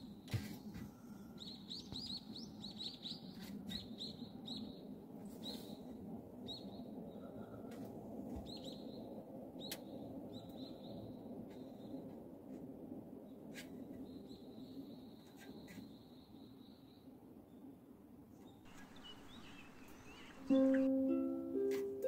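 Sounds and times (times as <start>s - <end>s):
small birds chirping: 0.0s - 7.7s, 13.2s - 21.0s.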